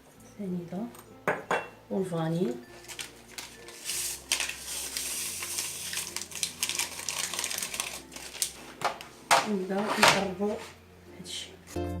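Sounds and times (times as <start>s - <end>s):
sugar poured into a bowl: 2.9s - 8.5s.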